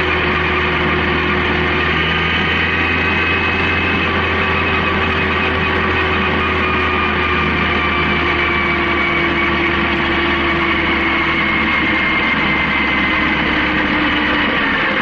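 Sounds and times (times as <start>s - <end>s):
motorcycle engine droning: 0.0s - 15.0s.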